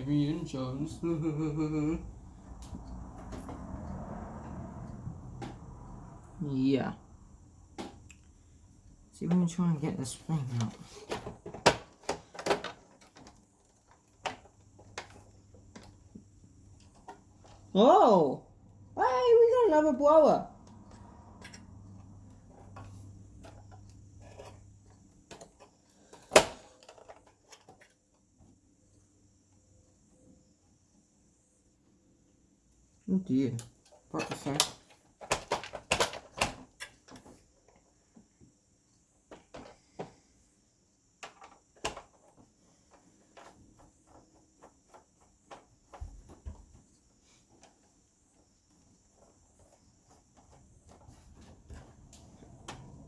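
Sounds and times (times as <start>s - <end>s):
clicks and knocks of parts handled: 33.6s - 37.3s.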